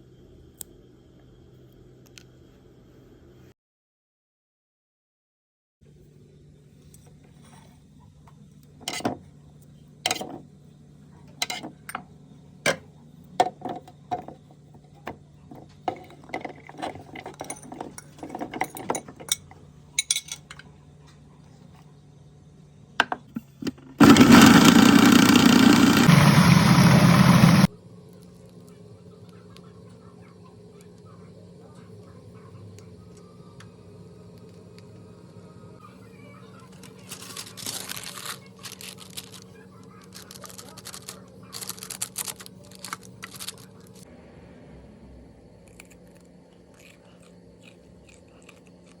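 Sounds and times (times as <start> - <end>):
kitchen appliance motor running: 23.4 - 27.7
crisp food crunching: 36.6 - 44.0, 45.6 - 49.0.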